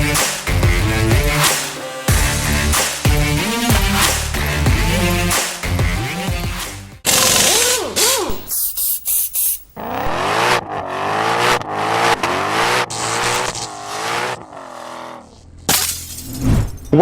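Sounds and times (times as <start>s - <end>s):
car engine revving: 0.0s - 6.1s, 9.8s - 15.7s.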